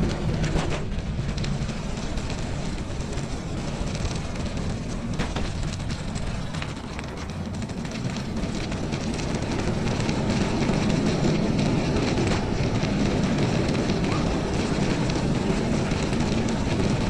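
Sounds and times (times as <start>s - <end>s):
bicycle tyres rolling on snow: 0.0s - 17.0s.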